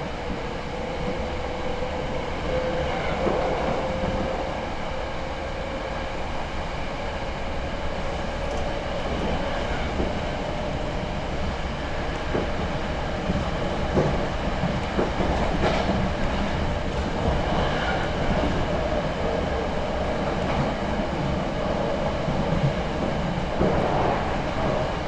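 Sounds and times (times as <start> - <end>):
train rumble and rail noise: 0.0 - 25.0
faint rail clacks: 8.4 - 10.5, 12.0 - 18.8.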